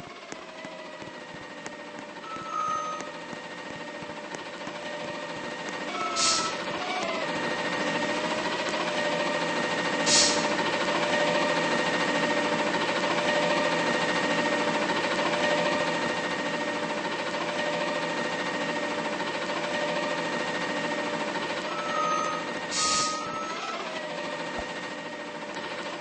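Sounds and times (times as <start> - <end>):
garbage truck diesel drone: 0.0 - 26.0
short air hiss: 10.1 - 10.5, 22.7 - 23.2.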